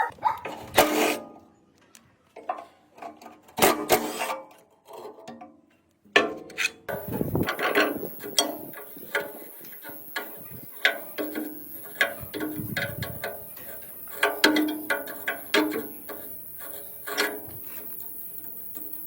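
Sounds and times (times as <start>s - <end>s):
hand tools clicking on metal parts: 6.5s - 19.0s.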